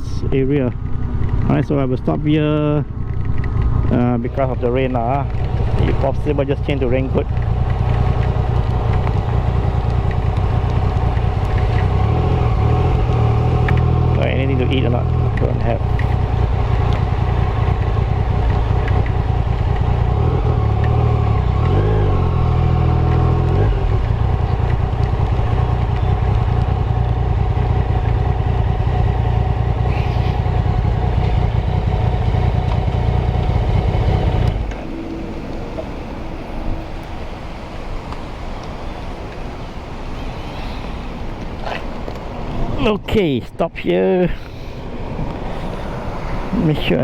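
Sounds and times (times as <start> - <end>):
motorcycle engine running: 0.0 - 43.3
rain hissing: 15.8 - 42.6, 44.3 - 46.8.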